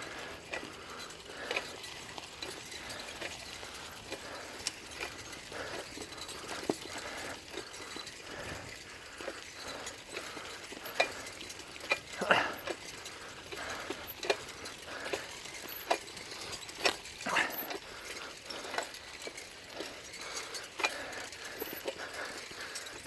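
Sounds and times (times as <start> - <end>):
bicycle frame clicking and rattling: 0.0 - 23.0.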